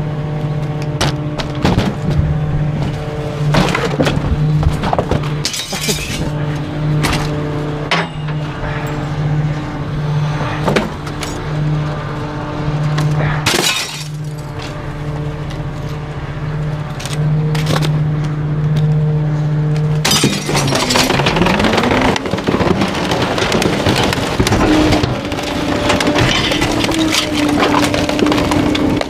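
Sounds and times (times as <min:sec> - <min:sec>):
truck engine and hydraulics drone: 0:00.0 - 0:29.0
load crunching: 0:00.7 - 0:08.8, 0:19.7 - 0:29.0
items cracking: 0:20.0 - 0:29.0.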